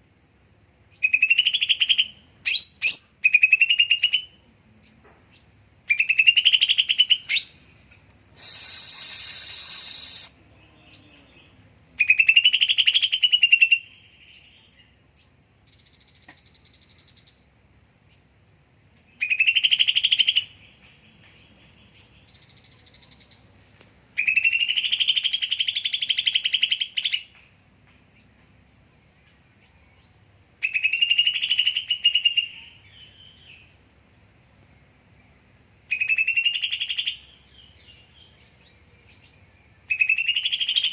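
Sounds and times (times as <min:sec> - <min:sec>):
bird whistling song: 0:01.0 - 0:04.3, 0:05.9 - 0:07.6, 0:08.3 - 0:11.3, 0:12.0 - 0:14.6, 0:19.2 - 0:20.6, 0:24.2 - 0:27.3, 0:30.0 - 0:33.7, 0:35.9 - 0:40.9
harsh hissing burst: 0:08.2 - 0:10.4
high bird twittering: 0:08.3 - 0:10.4, 0:24.2 - 0:27.3.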